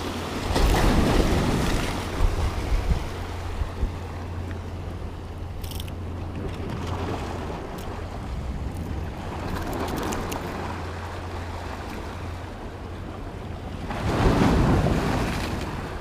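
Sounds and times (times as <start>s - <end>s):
wind on microphone: 0.0s - 4.2s
surf washing against rocks: 0.0s - 4.4s, 6.4s - 16.0s.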